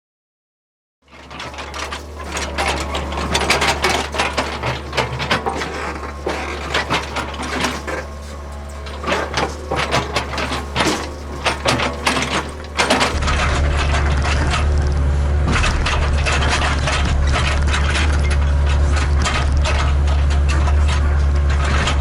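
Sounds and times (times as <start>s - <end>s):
bucket and tracks clanking: 1.1s - 14.6s
excavator diesel engine droning: 1.1s - 15.4s.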